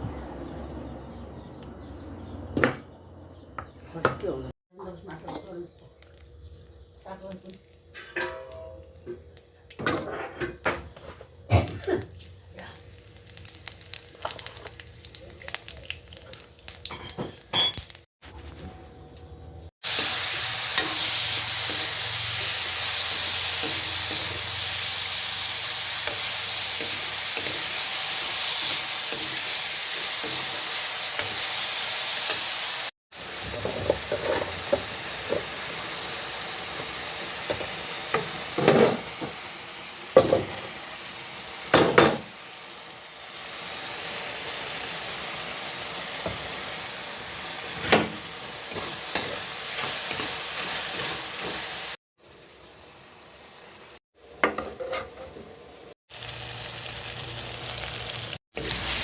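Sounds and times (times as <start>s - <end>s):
food sizzling in oil: 11.6s - 18.1s, 19.2s - 59.0s.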